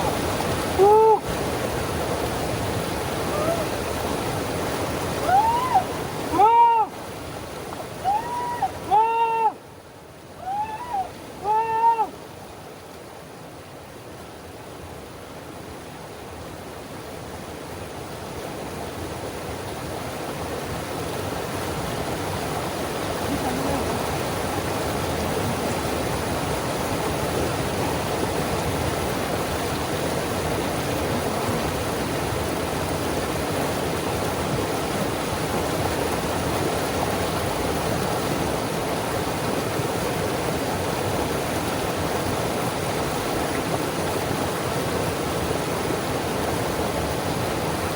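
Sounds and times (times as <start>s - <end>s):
river rapids rushing: 0.0s - 12.6s, 18.0s - 47.9s.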